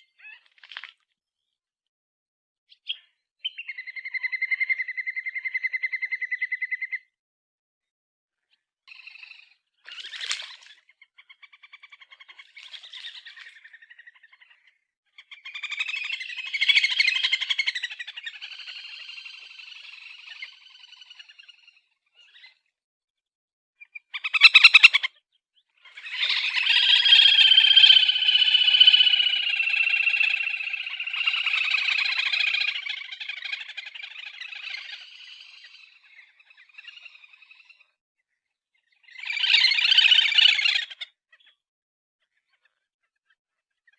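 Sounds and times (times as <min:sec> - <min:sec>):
grebe calling in rattling trills: 0:09.0 - 0:14.5, 0:15.2 - 0:21.7, 0:24.1 - 0:25.1, 0:25.9 - 0:37.8, 0:39.1 - 0:41.2.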